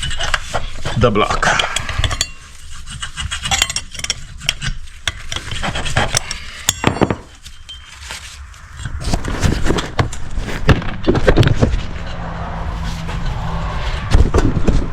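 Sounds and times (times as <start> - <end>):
metal parts and tools clicking: 1.4 - 9.0.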